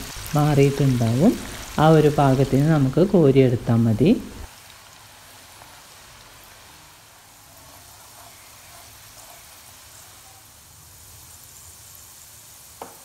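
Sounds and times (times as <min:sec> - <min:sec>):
beans sizzling in hot oil: 0:00.0 - 0:13.0.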